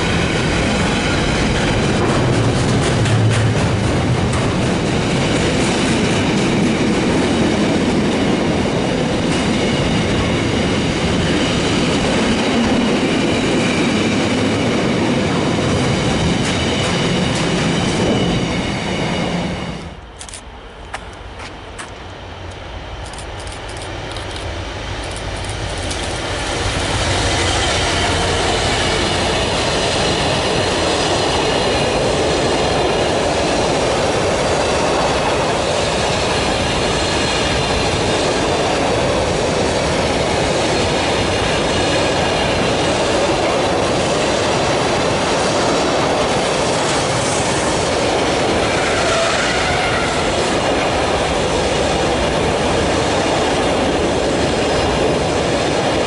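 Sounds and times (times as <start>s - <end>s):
diesel locomotive engine: 0.0s - 56.0s.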